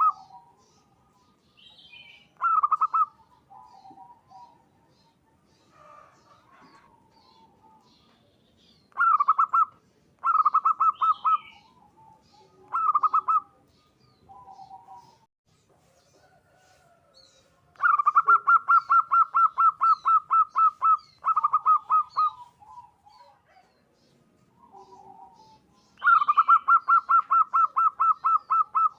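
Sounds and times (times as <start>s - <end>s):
dove staccato cooing: 0.0s - 0.6s, 2.3s - 8.2s, 8.9s - 15.3s, 17.7s - 28.9s
small birds twittering: 0.0s - 28.9s.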